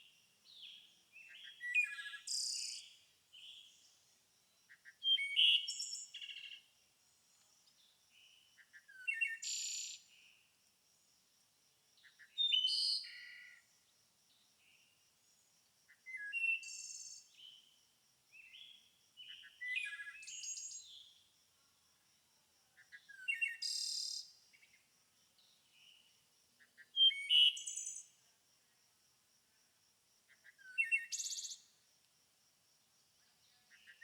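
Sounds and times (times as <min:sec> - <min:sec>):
songbirds chirping and trilling: 0:00.4 - 0:10.4.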